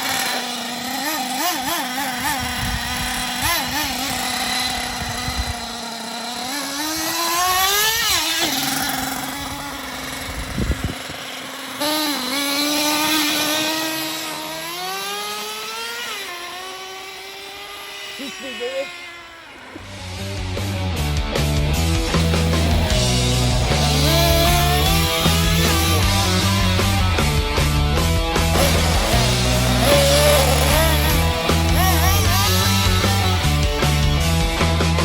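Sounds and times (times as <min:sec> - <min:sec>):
small engine revving and whining: 0:00.0 - 0:35.0
low rumbles: 0:19.8 - 0:35.0.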